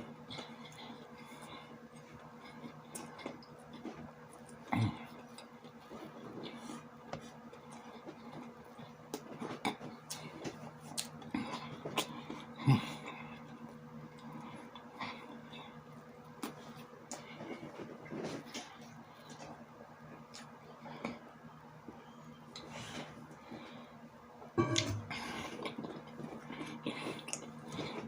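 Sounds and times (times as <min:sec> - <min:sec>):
person chewing: 0:02.4 - 0:06.6
steady low hum: 0:20.1 - 0:28.0.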